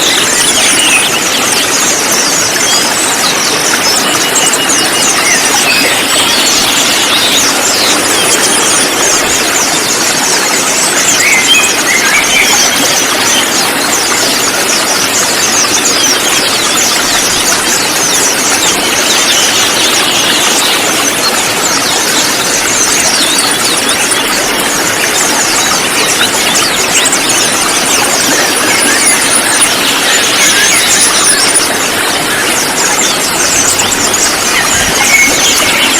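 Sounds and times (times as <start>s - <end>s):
flock of birds chirping: 0.0s - 35.9s.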